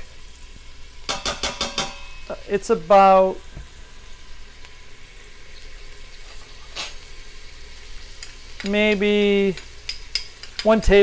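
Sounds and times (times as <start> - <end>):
chicken sizzling in oil: 0.0 - 11.0
man saying um: 8.7 - 9.6.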